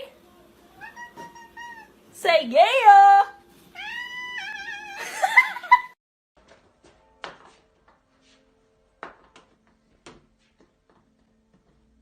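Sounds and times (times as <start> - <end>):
cat meowing: 0.8 - 2.0, 3.7 - 5.1.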